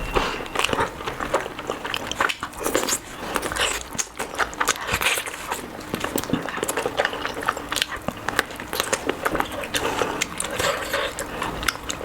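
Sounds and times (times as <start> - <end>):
chewing and mouth clicks: 1.4 - 12.0.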